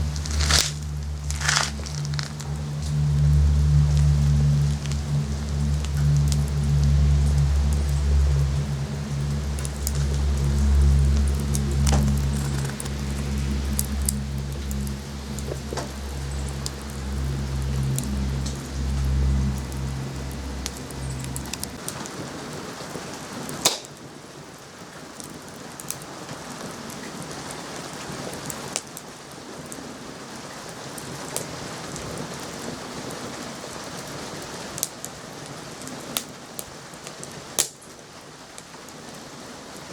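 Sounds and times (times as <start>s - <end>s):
low hum: 0.0s - 21.9s
wood fire crackling: 0.0s - 22.0s.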